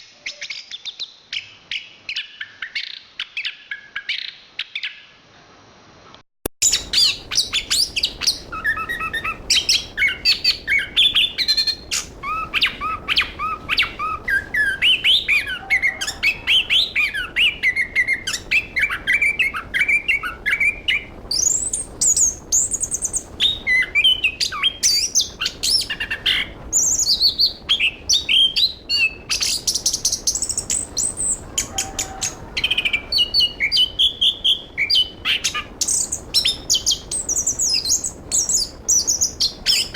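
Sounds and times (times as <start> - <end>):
thrush singing: 6.6 - 27.0.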